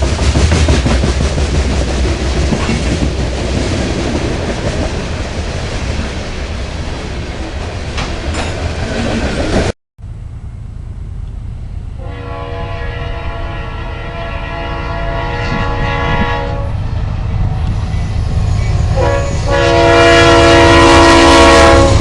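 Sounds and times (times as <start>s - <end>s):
diesel train rumbling: 0.0s - 22.0s
locomotive air horn: 12.0s - 16.8s, 18.9s - 22.0s.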